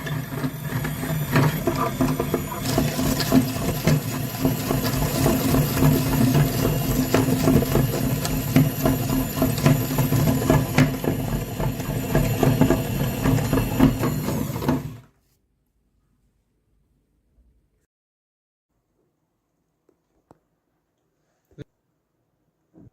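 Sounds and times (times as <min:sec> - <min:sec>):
small motor whirring: 0:00.0 - 0:15.0.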